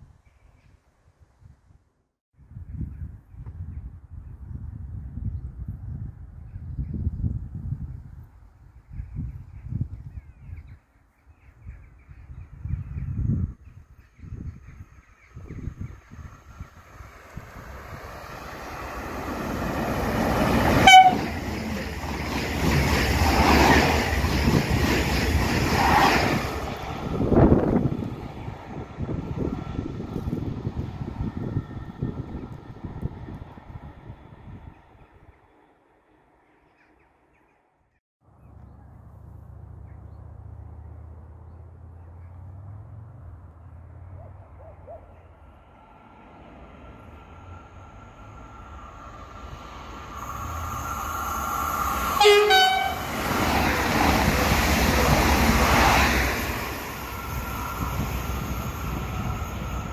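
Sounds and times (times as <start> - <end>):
electric train passing: 14.7 - 36.5, 45.3 - 59.9
train horn blast: 20.7 - 21.6, 52.2 - 53.3.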